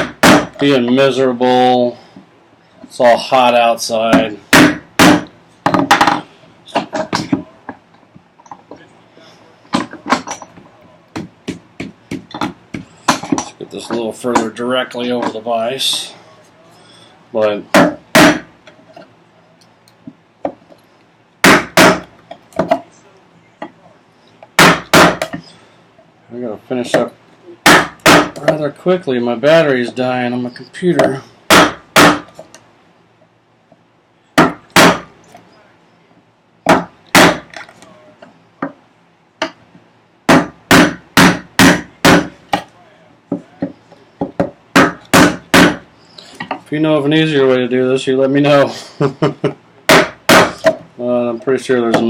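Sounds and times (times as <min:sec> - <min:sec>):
hammer striking chisel into wood: 0:00.0 - 0:00.6, 0:04.1 - 0:06.2, 0:11.1 - 0:14.5, 0:17.7 - 0:18.5, 0:21.4 - 0:22.8, 0:24.6 - 0:25.4, 0:27.6 - 0:28.6, 0:31.0 - 0:32.4, 0:34.4 - 0:35.1, 0:36.7 - 0:37.5, 0:40.3 - 0:42.7, 0:43.3 - 0:45.8, 0:49.9 - 0:50.8
mallet striking chisel: 0:00.0 - 0:00.6, 0:49.9 - 0:50.8.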